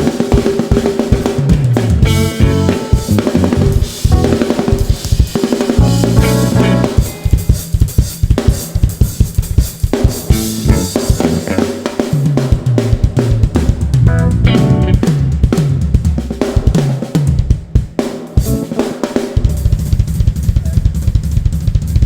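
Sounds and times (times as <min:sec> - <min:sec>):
live band playing soul groove: 0:00.0 - 0:15.9, 0:18.4 - 0:19.6
drum kit hits: 0:00.0 - 0:22.0.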